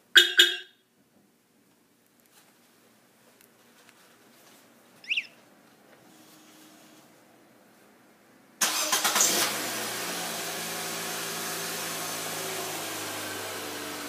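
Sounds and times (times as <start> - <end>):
car engine starting and idling: 8.6 - 14.0.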